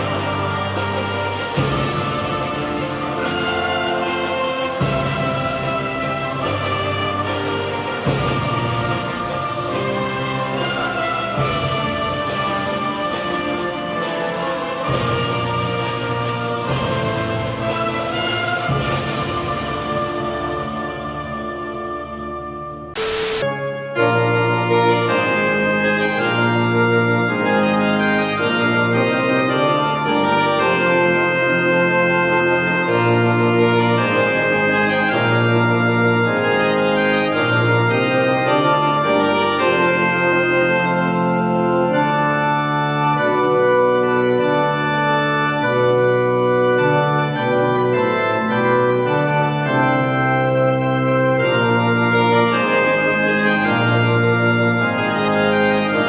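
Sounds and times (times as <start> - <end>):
organ playing held chords: 0.0 - 56.0.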